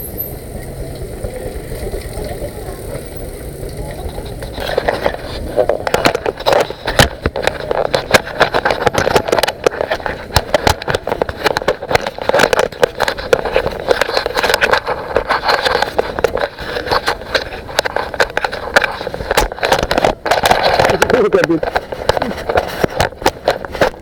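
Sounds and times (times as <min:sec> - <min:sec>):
steady vehicle rumble: 0:00.0 - 0:24.0
vehicle rattling on rough trail: 0:00.0 - 0:24.0.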